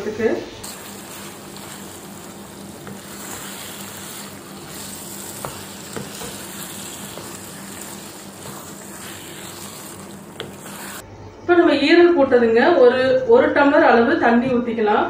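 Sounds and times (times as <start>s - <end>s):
liver sizzling in a frying pan: 0.6s - 11.0s
spatula stirring: 0.6s - 11.0s.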